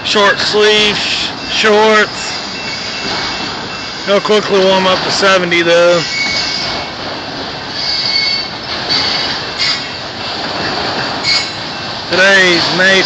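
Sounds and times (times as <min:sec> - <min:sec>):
freight train cars rumbling: 0:00.0 - 0:13.0
faint wheel squeals: 0:01.3 - 0:04.8, 0:05.8 - 0:10.0, 0:11.0 - 0:11.9.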